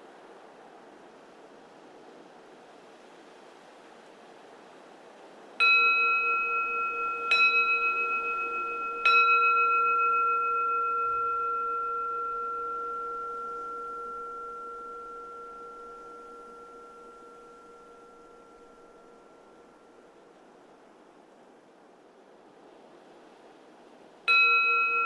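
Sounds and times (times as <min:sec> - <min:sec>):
faint wind hiss: 0:00.0 - 0:25.0
bowl-shaped temple bell ringing: 0:05.6 - 0:20.5, 0:24.3 - 0:25.0.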